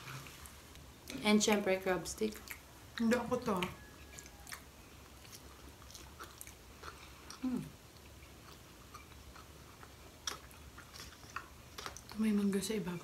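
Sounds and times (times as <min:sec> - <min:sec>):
person chewing: 0:02.3 - 0:12.2.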